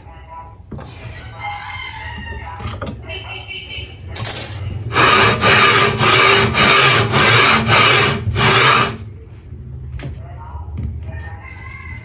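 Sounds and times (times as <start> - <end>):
hand saw cutting wood: 4.9 - 9.0.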